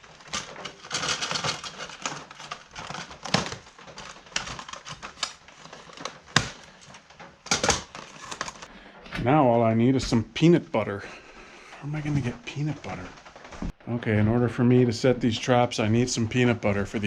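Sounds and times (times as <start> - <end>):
plastic packaging rustling: 0.0 - 8.8, 10.4 - 13.8
traps clicking: 10.0 - 17.0.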